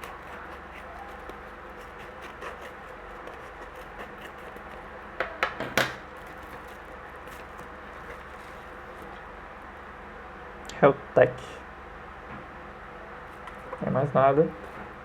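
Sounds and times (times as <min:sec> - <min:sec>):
package clicks and crinkles: 0:05.9 - 0:09.2.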